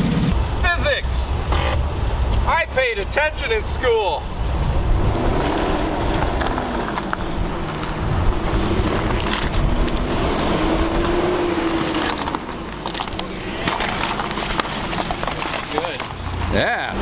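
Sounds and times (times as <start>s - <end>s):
vehicle engine running: 0.0s - 17.0s
wind on microphone: 4.2s - 11.7s.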